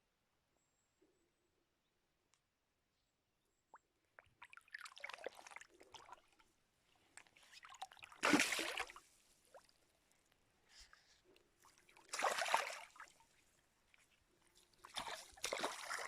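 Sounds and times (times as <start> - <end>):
water splashing and sloshing: 4.2 - 16.0.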